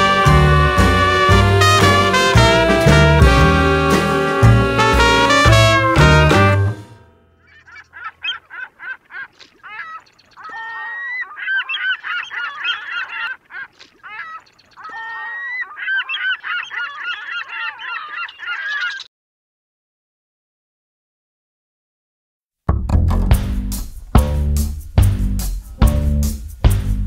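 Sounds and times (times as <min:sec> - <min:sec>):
flock of birds calling: 0:07.4 - 0:19.1.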